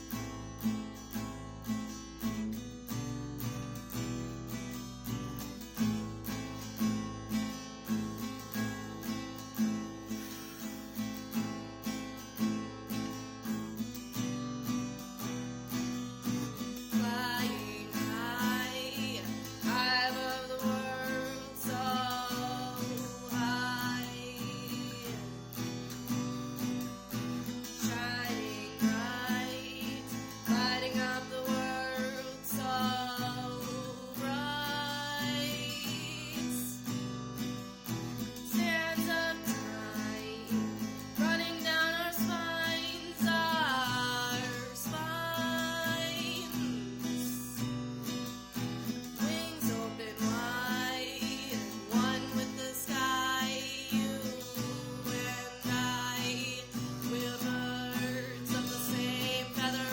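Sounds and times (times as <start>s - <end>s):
acoustic guitar strumming: 0.0s - 59.9s
person singing: 16.4s - 37.1s, 38.2s - 47.8s, 49.0s - 59.9s.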